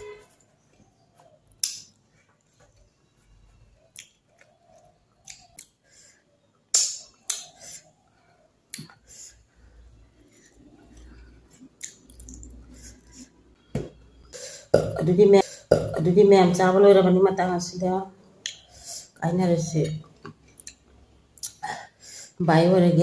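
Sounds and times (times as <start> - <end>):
wet mouth smacks and clicks: 1.5 - 2.0, 3.9 - 4.5, 5.2 - 5.8, 6.7 - 7.7, 8.7 - 9.0, 11.8 - 12.6.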